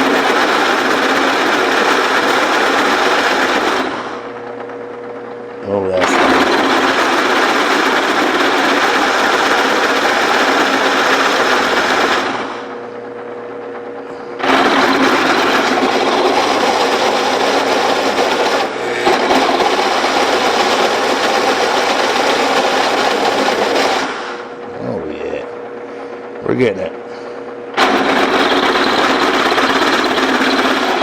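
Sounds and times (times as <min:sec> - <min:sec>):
drill press cutting steel: 0:00.0 - 0:04.3, 0:05.9 - 0:12.7, 0:14.4 - 0:24.5, 0:27.7 - 0:31.0
motor humming: 0:00.0 - 0:31.0.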